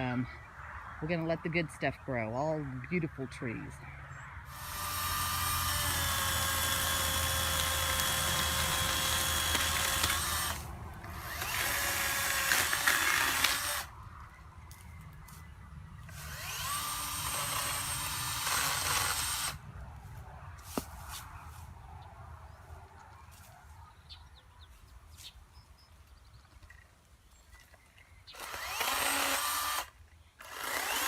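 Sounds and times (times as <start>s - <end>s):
electric chainsaw cutting wood: 4.5s - 13.9s, 16.1s - 19.6s, 28.3s - 31.0s.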